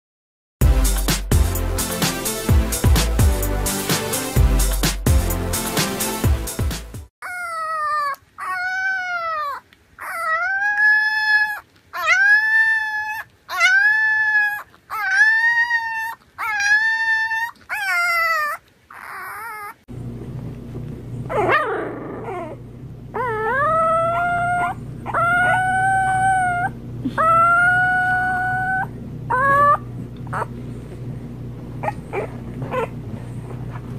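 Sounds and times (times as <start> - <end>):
puppy howling: 7.2 - 19.9, 21.3 - 30.6, 31.8 - 33.0
steady low hum: 19.9 - 33.9.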